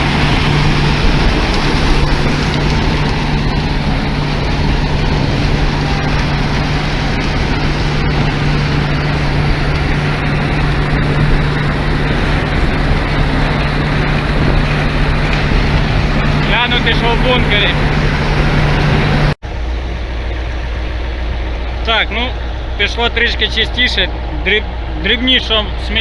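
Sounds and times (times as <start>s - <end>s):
threshing mechanism rattling: 0.0s - 19.4s
combine harvester humming: 0.0s - 26.0s.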